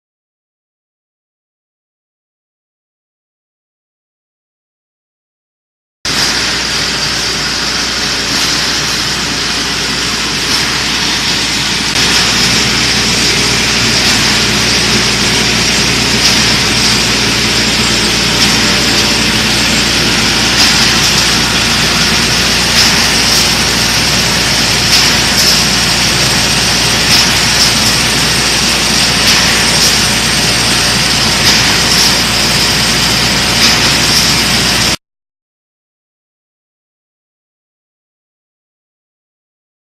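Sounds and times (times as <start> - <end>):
straightening machine running: 6.1 - 35.0.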